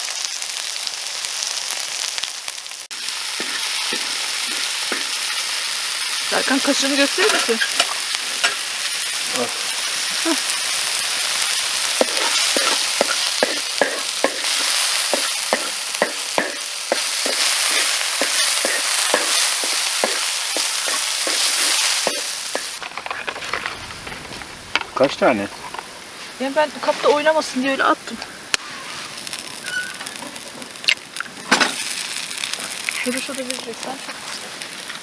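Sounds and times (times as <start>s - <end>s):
potatoes sizzling in oil: 0.0s - 35.0s
spoon scraping a pan: 3.3s - 9.1s, 10.5s - 24.5s.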